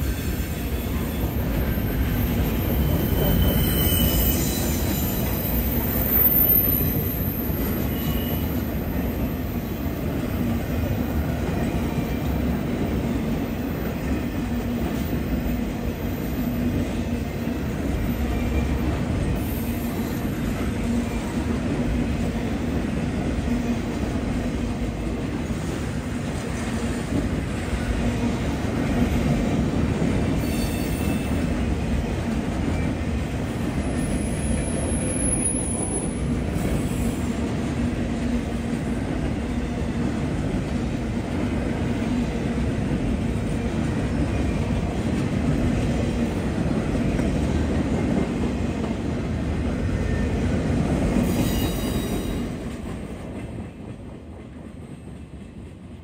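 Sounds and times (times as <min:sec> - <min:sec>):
high wheel squeal: 0:00.0 - 0:08.7, 0:30.4 - 0:31.4, 0:51.2 - 0:52.5
freight train cars rumbling: 0:00.0 - 0:56.0.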